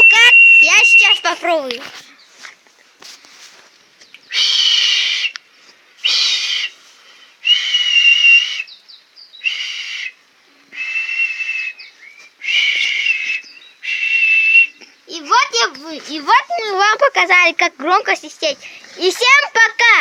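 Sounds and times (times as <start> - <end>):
person whistling shrilly: 0.0 - 1.6, 4.3 - 5.4, 6.0 - 6.8, 7.4 - 8.8, 9.4 - 10.2, 10.8 - 14.8.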